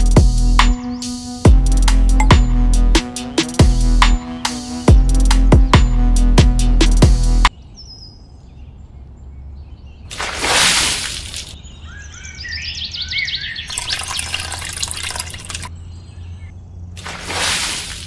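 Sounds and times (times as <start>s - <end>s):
small birds chirping: 0.0s - 6.1s, 7.5s - 10.3s, 11.2s - 17.2s
water splashing and trickling: 10.0s - 11.6s, 13.7s - 15.8s, 16.9s - 18.0s.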